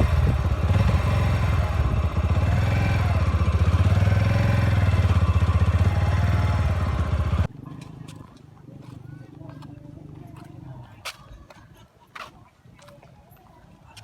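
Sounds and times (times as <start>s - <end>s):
vehicle engine running: 0.0s - 7.5s.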